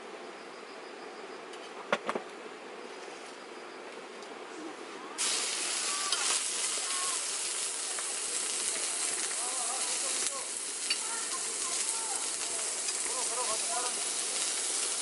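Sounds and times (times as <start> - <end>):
faint distant voices: 4.4 - 15.0.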